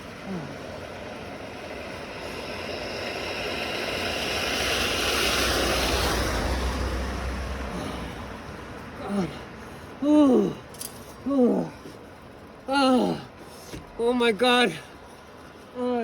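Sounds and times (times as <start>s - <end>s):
vehicle engine rumble passing: 0.0s - 10.0s
road noise: 0.0s - 16.0s.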